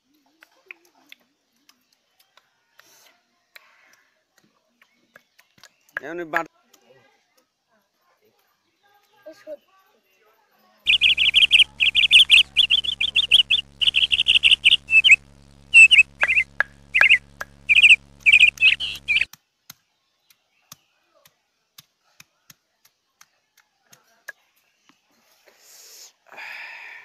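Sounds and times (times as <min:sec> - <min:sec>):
bird chirping in warbling trills: 0:10.9 - 0:19.3
faint ticks: 0:10.9 - 0:19.3
steady low hum: 0:10.9 - 0:19.3.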